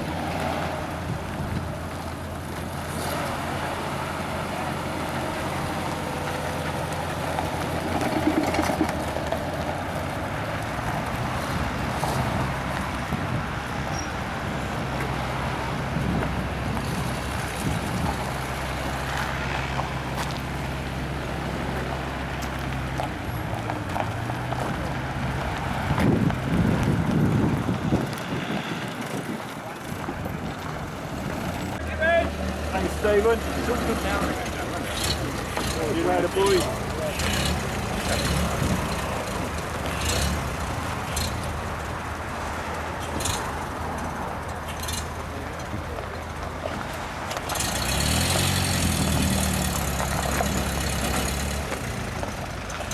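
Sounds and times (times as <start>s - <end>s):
wind buffeting microphone: 0.0s - 2.9s, 5.4s - 18.9s, 23.4s - 31.8s
motor vehicle noise: 0.0s - 52.9s
vehicle engine at low revs: 29.6s - 52.9s.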